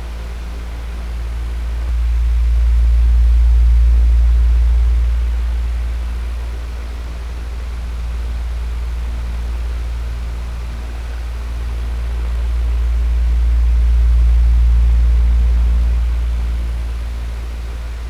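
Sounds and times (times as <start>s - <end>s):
electric fan running: 0.0s - 18.0s.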